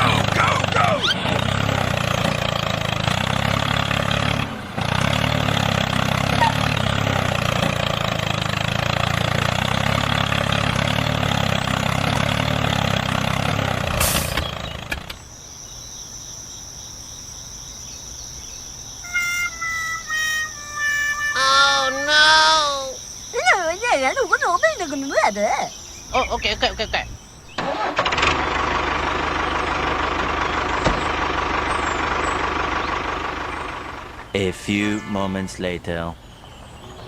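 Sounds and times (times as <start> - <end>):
small engine running: 0.0 - 15.2, 27.6 - 34.3
musical notes: 19.1 - 22.8.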